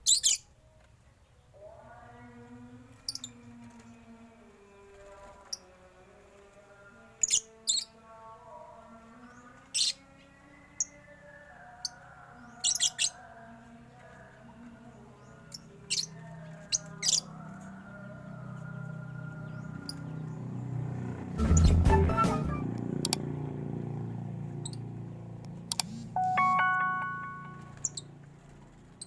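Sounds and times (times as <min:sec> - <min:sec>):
birds chirping: 0:09.1 - 0:21.8, 0:24.5 - 0:28.3.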